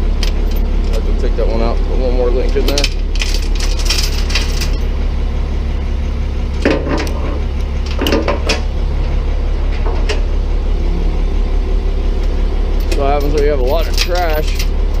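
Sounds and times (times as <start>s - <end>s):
low hum: 0.0s - 15.0s
chain clinking and rattling: 2.5s - 4.9s, 12.7s - 15.0s.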